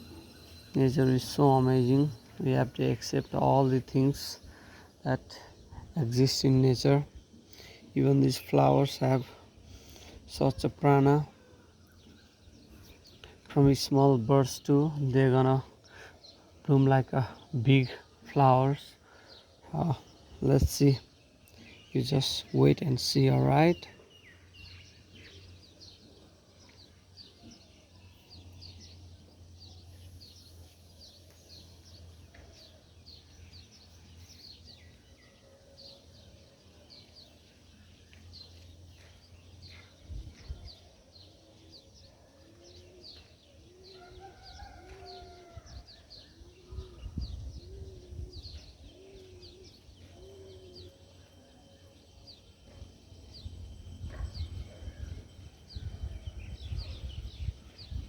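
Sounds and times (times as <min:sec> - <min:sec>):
even lower bird calls: 0:15.4 - 0:58.0.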